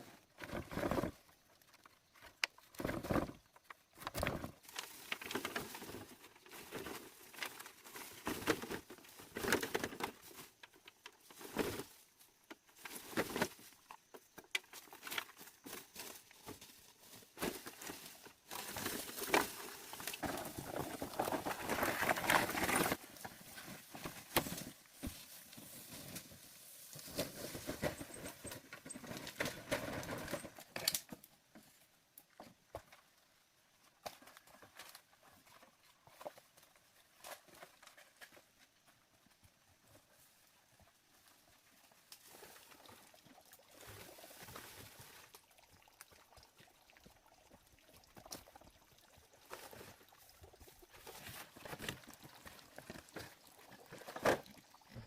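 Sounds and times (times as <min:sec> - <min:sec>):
dry leaves and sticks rustling: 0:00.4 - 0:31.3.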